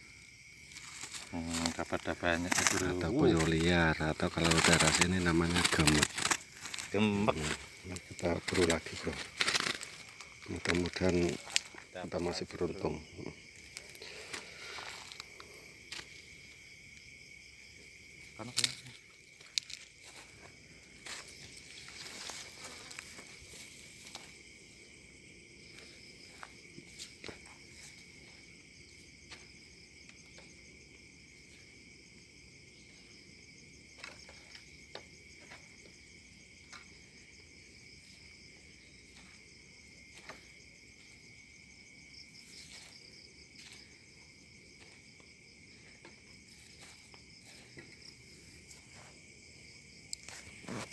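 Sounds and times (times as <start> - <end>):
insects chirring: 0.0 - 50.9
soft footsteps: 0.6 - 12.0
rustling: 0.6 - 12.6, 18.5 - 24.4.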